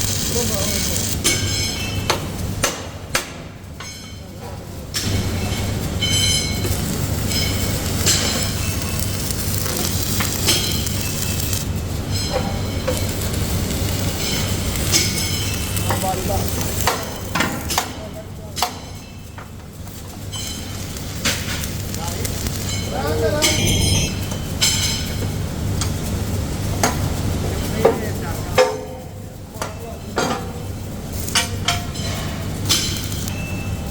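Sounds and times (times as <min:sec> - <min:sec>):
workshop machinery humming: 0:00.0 - 0:33.9
metal parts clanking: 0:05.0 - 0:17.8, 0:29.6 - 0:33.9.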